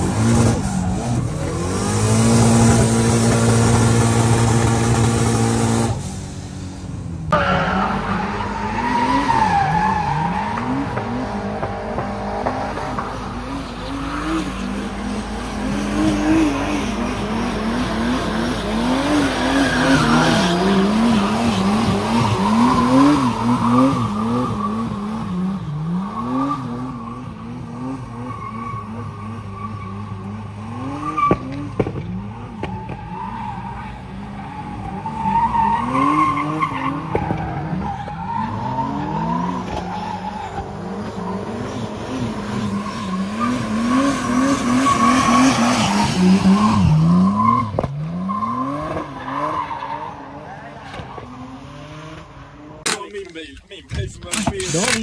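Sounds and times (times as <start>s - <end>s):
car engine revving hard: 0.0s - 6.1s.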